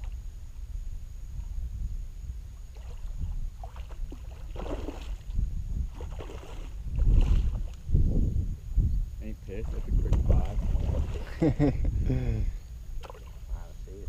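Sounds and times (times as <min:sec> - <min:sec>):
wind rumbling on microphone: 0:00.0 - 0:14.0
water sloshing around boat: 0:02.6 - 0:07.8, 0:09.4 - 0:11.8, 0:13.0 - 0:13.7.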